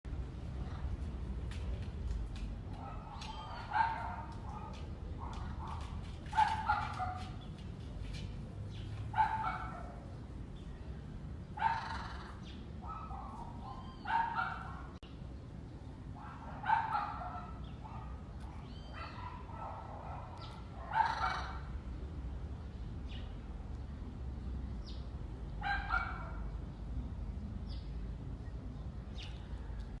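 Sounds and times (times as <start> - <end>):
parrot calling: 11.6 - 12.4, 20.9 - 21.6.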